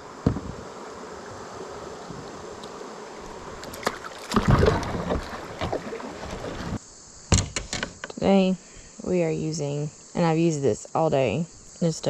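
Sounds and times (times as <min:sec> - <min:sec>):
water around kayak: 0:00.0 - 0:06.8
knocks and splashes against boat: 0:03.3 - 0:06.8.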